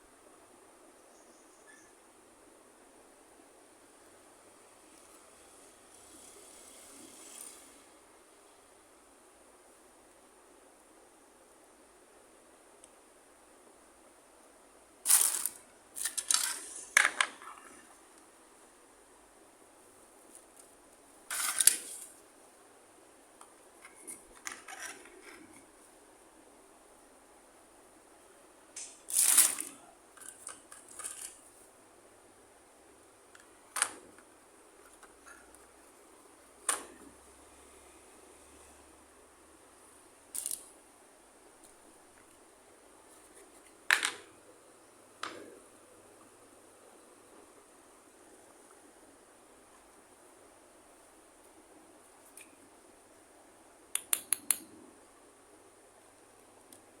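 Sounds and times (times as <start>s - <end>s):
faint room hiss: 0.0s - 57.0s
plastic pieces clicking: 15.1s - 17.4s, 40.4s - 40.7s
packaging crinkling and rustling: 15.1s - 17.7s.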